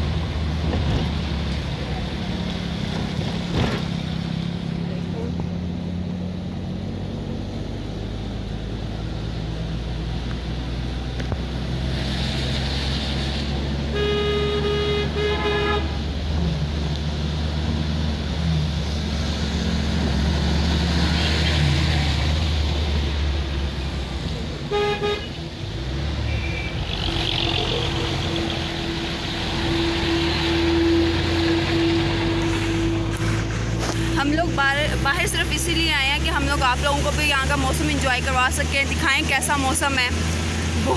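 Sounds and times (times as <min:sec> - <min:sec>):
engine hum: 0:00.0 - 0:40.9
vehicles hissing past on wet road: 0:11.6 - 0:13.8, 0:26.8 - 0:40.9
vehicle horn: 0:13.9 - 0:16.1, 0:24.7 - 0:25.4, 0:29.6 - 0:33.0.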